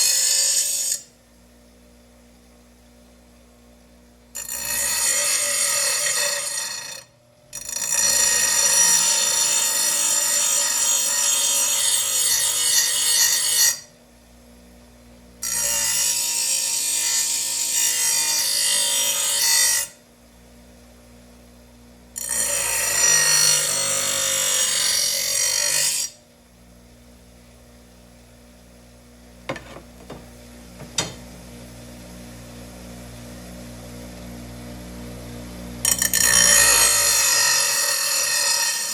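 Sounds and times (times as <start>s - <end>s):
power tool grinding metal blade: 0.0s - 1.1s, 4.4s - 13.9s, 15.4s - 20.0s, 22.2s - 26.2s, 29.5s - 30.2s, 35.8s - 38.9s.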